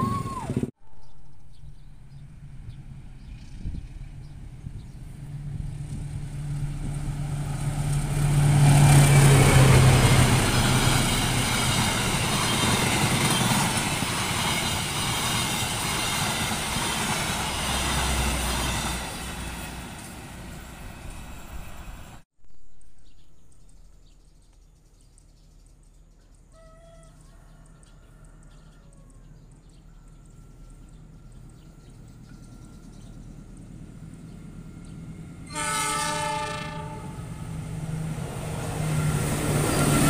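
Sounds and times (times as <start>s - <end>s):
locomotive engine drone: 1.4s - 22.2s, 29.5s - 40.0s.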